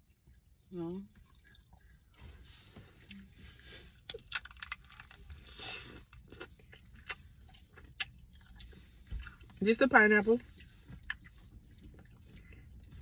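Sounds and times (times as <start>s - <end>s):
chewing hard candy: 3.0s - 9.6s, 10.4s - 13.0s.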